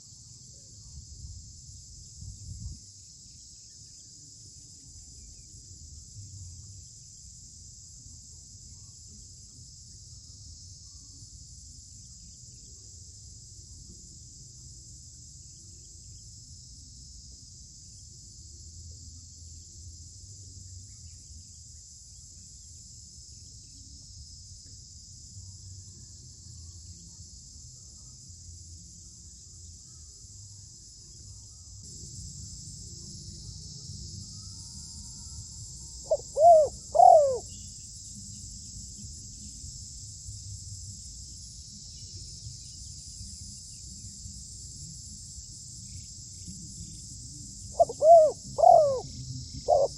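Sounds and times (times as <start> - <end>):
crickets chirping: 0.0 - 49.9
dove calling: 36.0 - 37.5, 47.8 - 49.9.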